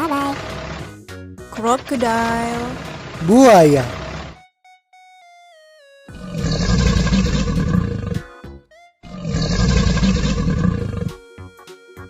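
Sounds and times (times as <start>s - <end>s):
light background music: 0.0s - 12.0s
crocodile roar: 6.2s - 8.2s, 9.1s - 11.2s.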